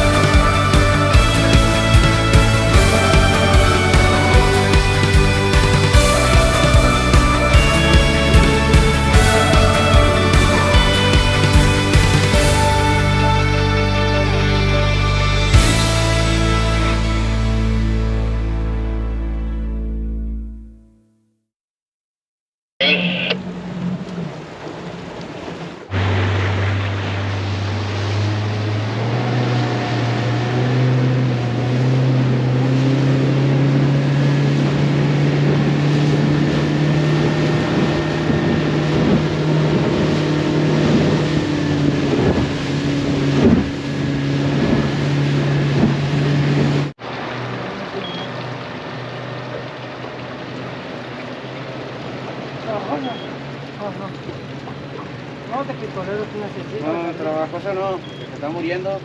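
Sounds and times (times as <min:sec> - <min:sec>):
water noise: 0:00.0 - 0:20.1, 0:22.8 - 0:59.0
boat engine running: 0:00.0 - 0:20.7, 0:22.8 - 0:59.0
wind: 0:22.8 - 0:59.0.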